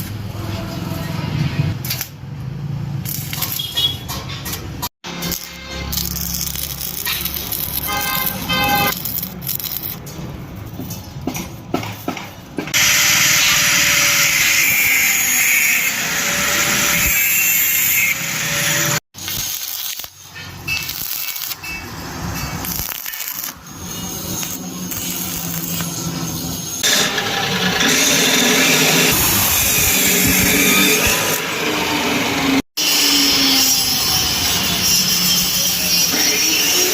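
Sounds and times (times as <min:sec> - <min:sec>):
power tools grinding metal: 0:05.1 - 0:10.2, 0:12.7 - 0:36.9.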